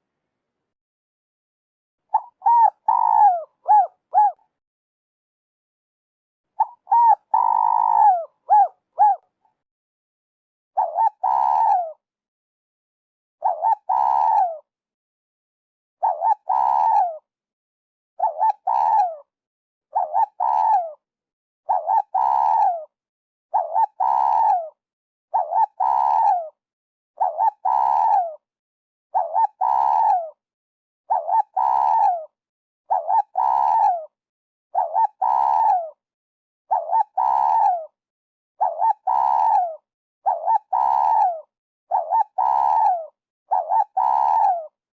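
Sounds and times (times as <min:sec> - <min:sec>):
dove cooing: 0:02.1 - 0:04.4, 0:06.6 - 0:09.2, 0:10.8 - 0:12.0, 0:13.4 - 0:14.6, 0:16.0 - 0:17.2, 0:18.2 - 0:19.2, 0:19.9 - 0:21.0, 0:21.7 - 0:22.9, 0:23.5 - 0:24.7, 0:25.3 - 0:26.6, 0:27.2 - 0:28.4, 0:29.2 - 0:30.3, 0:31.1 - 0:32.3, 0:32.9 - 0:34.1, 0:34.8 - 0:36.0, 0:36.7 - 0:38.0, 0:38.6 - 0:44.8.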